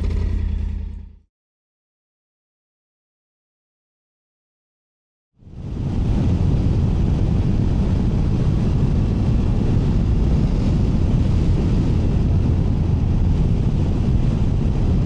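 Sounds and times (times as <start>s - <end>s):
motorcycle engine running: 0.0s - 1.2s
wind rushing over microphone: 5.4s - 15.0s.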